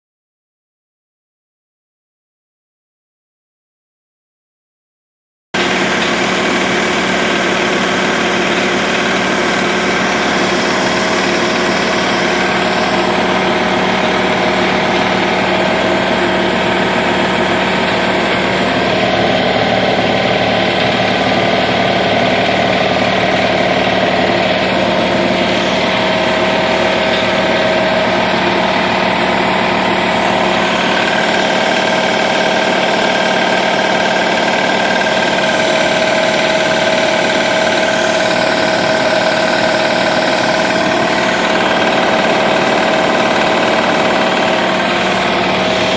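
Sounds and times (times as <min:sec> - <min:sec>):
air compressor hum and clatter: 0:05.6 - 0:45.9.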